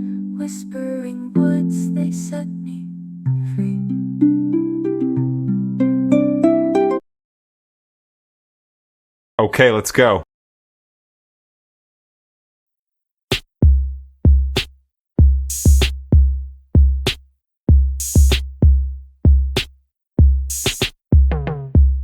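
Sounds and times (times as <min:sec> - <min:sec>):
deep kick drums: 0:13.3 - 0:22.0.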